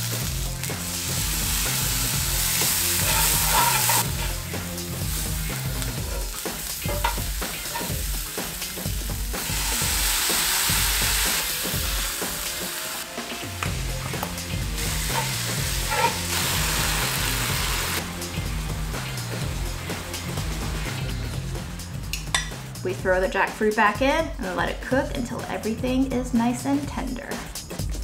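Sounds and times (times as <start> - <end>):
vegetables sizzling in hot oil: 0.0 - 18.6
utensils knocking on pan: 3.0 - 4.4, 6.0 - 8.0, 15.0 - 16.2, 22.3 - 22.6.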